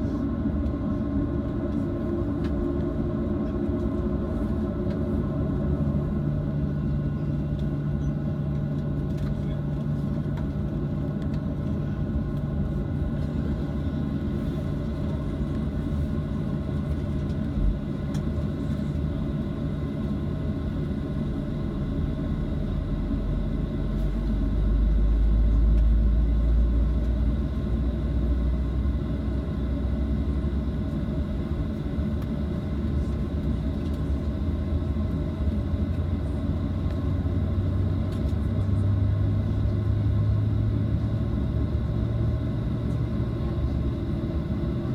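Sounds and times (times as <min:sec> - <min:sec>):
jet engines droning: 0:00.0 - 0:44.9
low airframe rumble: 0:00.0 - 0:44.9.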